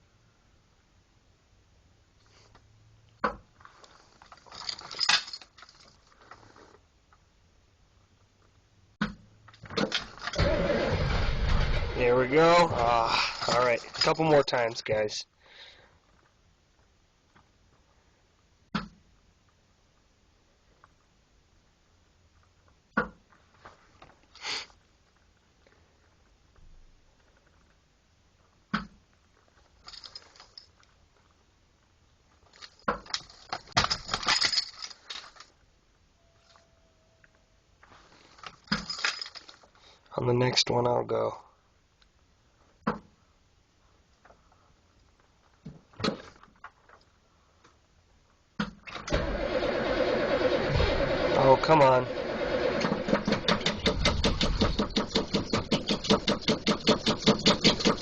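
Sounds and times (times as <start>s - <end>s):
diesel engine cranking on starter: 10.2s - 12.2s, 48.9s - 58.0s.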